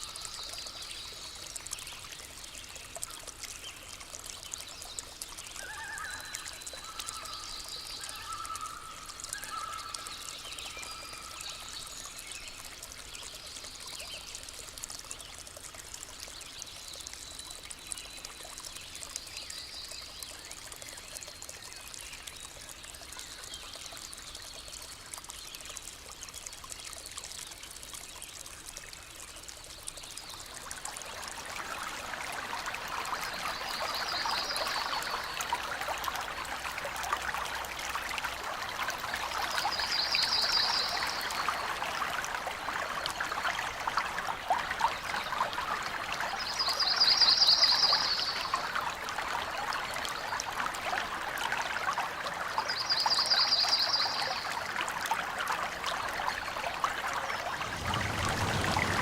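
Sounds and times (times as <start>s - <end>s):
stream trickling over stones: 0.0s - 59.0s.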